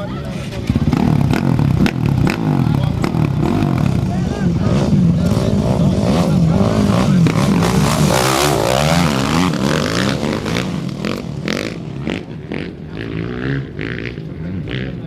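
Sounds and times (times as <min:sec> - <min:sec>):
motorcycle engine revving past: 0:00.4 - 0:15.0.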